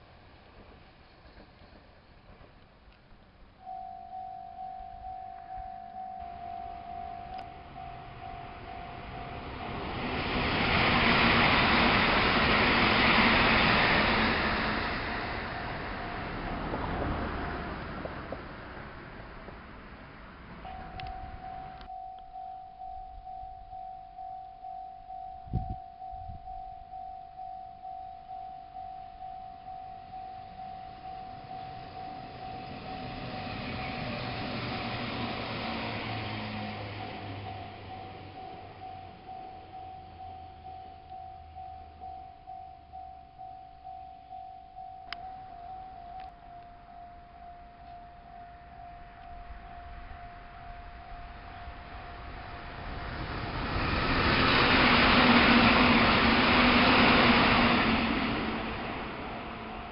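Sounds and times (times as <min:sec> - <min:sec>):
train running noise: 0:00.0 - 0:02.7, 0:05.5 - 0:21.9, 0:30.0 - 0:42.1, 0:45.2 - 0:59.9
level crossing bell dinging: 0:03.6 - 0:09.8, 0:20.7 - 0:33.6, 0:36.6 - 0:52.2
steady electronic tone: 0:03.6 - 0:16.6, 0:20.6 - 0:59.9.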